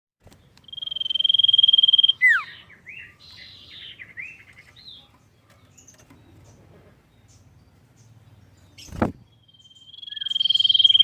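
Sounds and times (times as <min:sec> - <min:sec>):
bird singing whistles and chirps: 0:00.6 - 0:05.0, 0:08.5 - 0:11.0.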